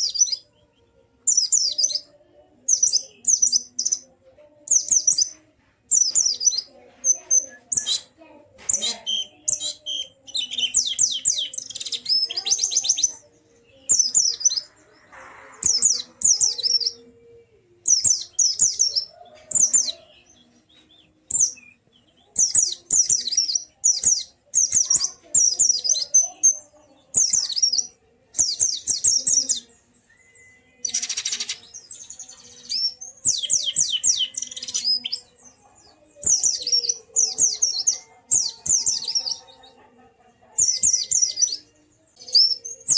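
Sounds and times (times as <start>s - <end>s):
bird singing high twittering notes: 1.2s - 2.1s, 2.7s - 4.0s.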